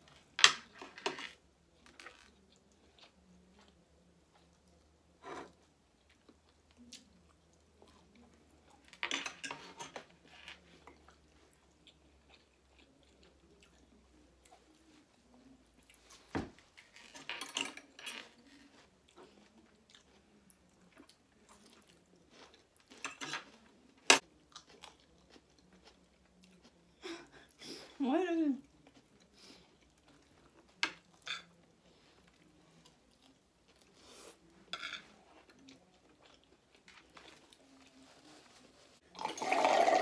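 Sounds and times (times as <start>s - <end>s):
chewing and biting food: 10.8s - 14.7s, 19.1s - 26.9s.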